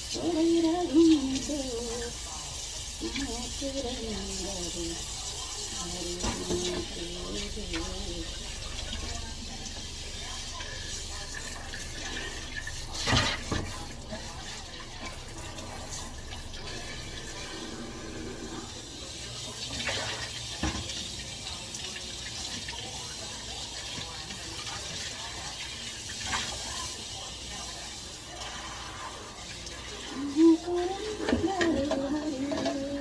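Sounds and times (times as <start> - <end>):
tap water running into sink: 0.0 - 33.0
dishes clattering: 5.2 - 18.7, 30.9 - 33.0.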